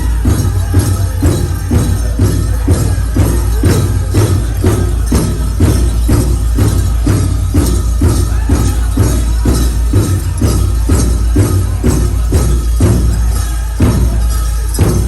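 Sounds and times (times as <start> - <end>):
bright jingling: 0.0 - 15.0
drum struck in steady beat: 0.0 - 15.0.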